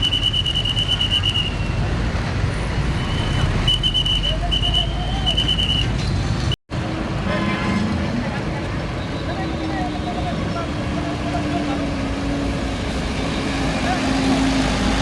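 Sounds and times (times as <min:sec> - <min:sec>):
high whistling tone: 0:00.0 - 0:01.8, 0:03.7 - 0:06.0
heavy road traffic rumble: 0:00.0 - 0:15.0.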